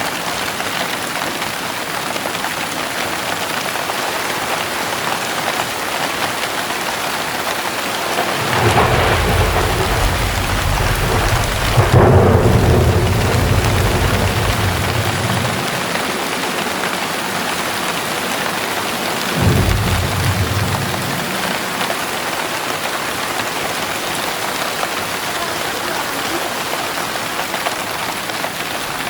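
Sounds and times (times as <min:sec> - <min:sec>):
heavy rain falling: 0:00.0 - 0:29.0
low rumble of thunder: 0:05.3 - 0:25.3.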